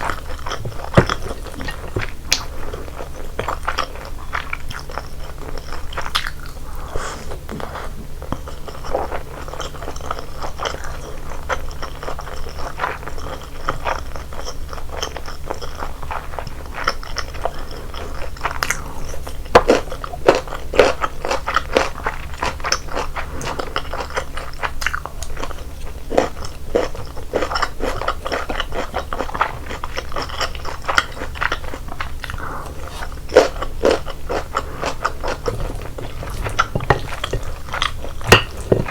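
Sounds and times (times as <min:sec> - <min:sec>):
person chewing food: 0:00.0 - 0:38.9.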